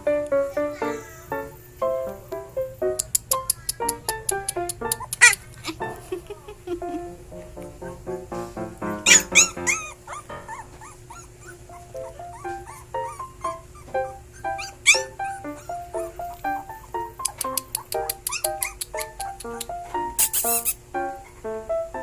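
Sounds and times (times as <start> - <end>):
puppies whimpering: 3.4 - 6.8, 9.0 - 19.7
background music: 6.9 - 9.8.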